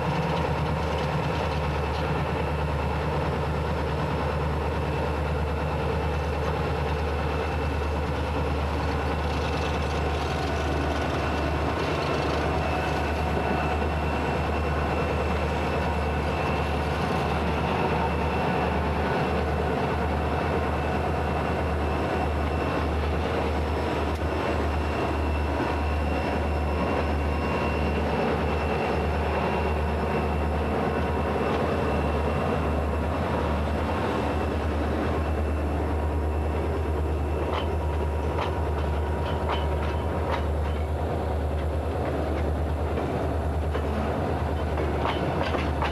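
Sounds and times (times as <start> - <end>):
freight train rumbling: 0.0 - 45.9
wheels clattering over rail joints: 37.4 - 45.9.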